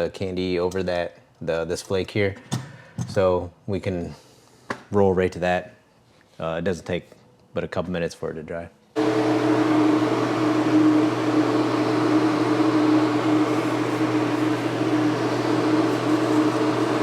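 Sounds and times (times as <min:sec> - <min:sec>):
even hum: 0:09.0 - 0:17.0
spray gun hissing air: 0:09.0 - 0:17.0.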